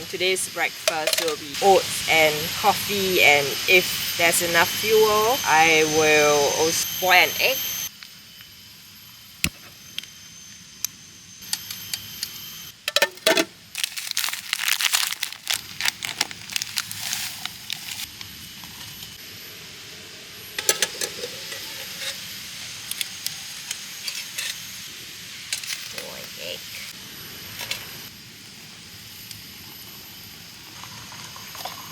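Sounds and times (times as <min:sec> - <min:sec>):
cooking gear clicking and clinking: 0:00.9 - 0:01.5, 0:12.9 - 0:18.0
packaging rustling: 0:13.0 - 0:18.1.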